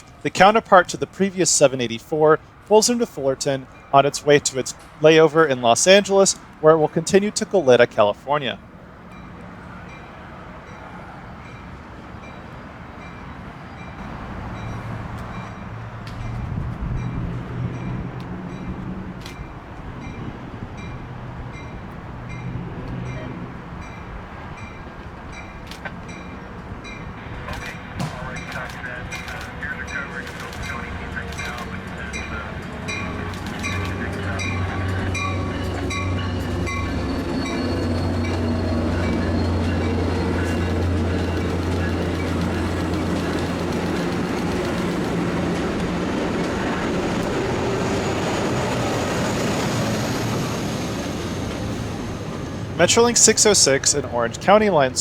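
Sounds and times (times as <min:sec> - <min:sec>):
locomotive hum: 0:00.0 - 0:55.0
rail rumble: 0:00.0 - 0:55.0.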